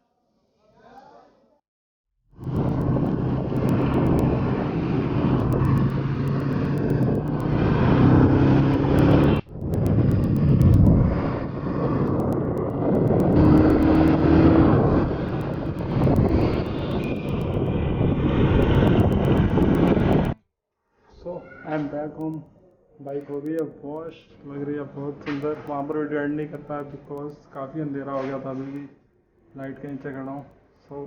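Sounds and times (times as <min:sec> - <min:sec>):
vehicle engines in busy street: 0:02.4 - 0:20.4.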